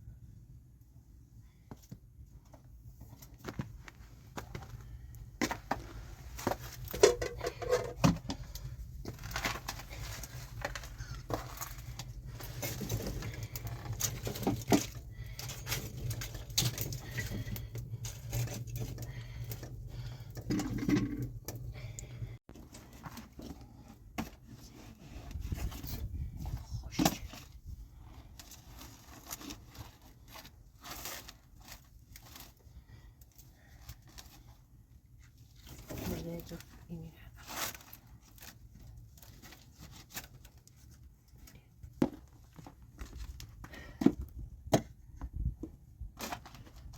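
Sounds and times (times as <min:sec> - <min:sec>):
low steady rumble: 0:00.0 - 0:37.3
objects being handled: 0:01.7 - 0:27.6.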